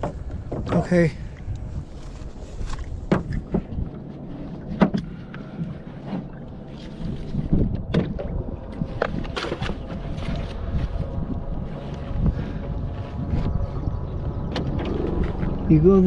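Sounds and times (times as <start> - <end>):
knocks and thumps on boat: 0.0 - 1.0, 2.8 - 4.0, 4.6 - 6.4, 7.4 - 10.6
low rumble of wind or water: 0.0 - 16.0.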